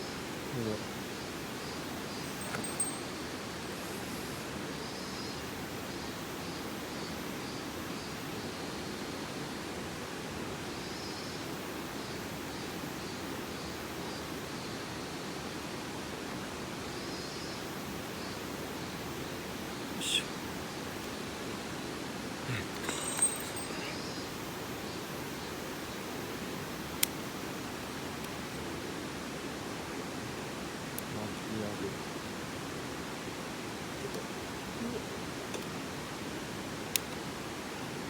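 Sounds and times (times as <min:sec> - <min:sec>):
faint high chirps: 0:02.0 - 0:03.4, 0:19.9 - 0:20.4, 0:22.5 - 0:24.4
small click: 0:02.3 - 0:02.9, 0:35.5 - 0:35.7, 0:36.9 - 0:37.2.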